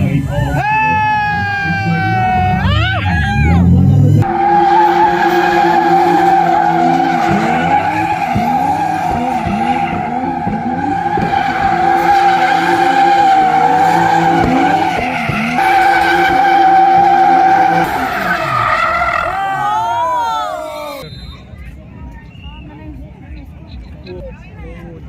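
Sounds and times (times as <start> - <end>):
car engine at high revs: 3.4 - 19.3
tyres screeching: 4.2 - 21.3.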